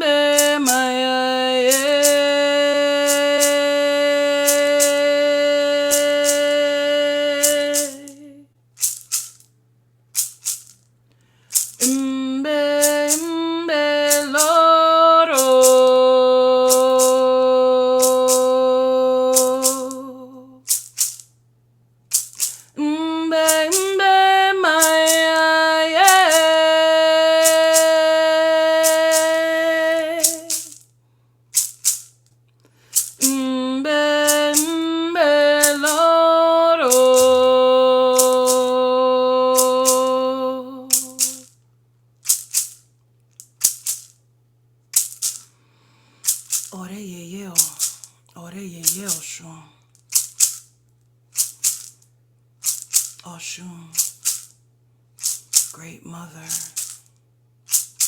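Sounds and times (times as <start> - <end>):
person singing slow song: 0.0 - 8.5, 11.8 - 20.6, 22.5 - 30.8, 33.0 - 41.5
hand rattle shaking: 0.0 - 10.9, 11.5 - 16.0, 16.6 - 17.4, 18.0 - 18.7, 19.3 - 21.4, 22.1 - 38.8, 39.5 - 41.6, 42.2 - 44.2, 44.9 - 45.6, 46.2 - 54.6, 55.2 - 58.0.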